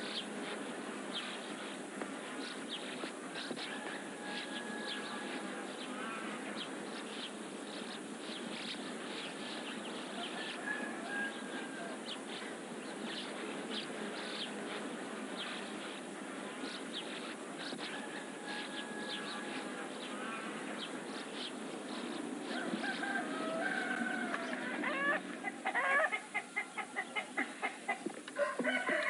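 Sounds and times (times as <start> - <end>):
small birds chirping: 0.0 - 28.1
outdoor background hiss: 0.0 - 29.0.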